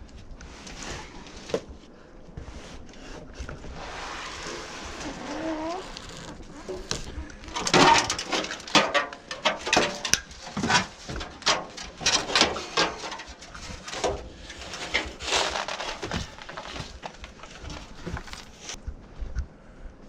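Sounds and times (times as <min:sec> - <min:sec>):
debris clattering and scraping: 0:03.4 - 0:18.8.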